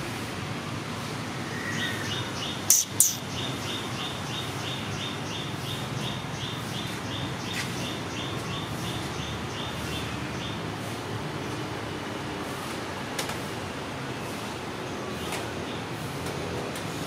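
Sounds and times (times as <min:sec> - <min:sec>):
steady background noise: 0:00.0 - 0:17.0
small bird chirping: 0:01.5 - 0:07.6.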